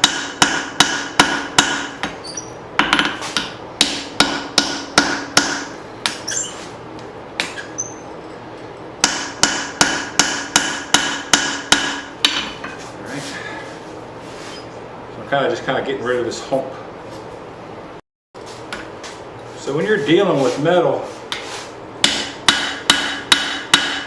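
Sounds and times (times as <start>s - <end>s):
hammer striking steel on anvil: 0.0s - 2.2s, 2.8s - 6.3s, 9.0s - 12.6s, 22.0s - 24.0s.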